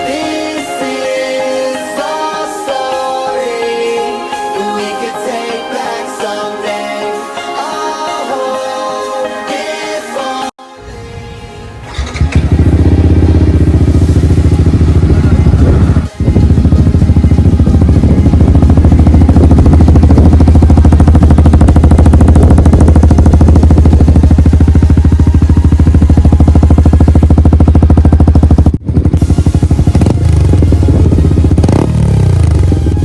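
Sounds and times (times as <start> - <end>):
motorcycle engine idling loudly: 11.8 - 33.0.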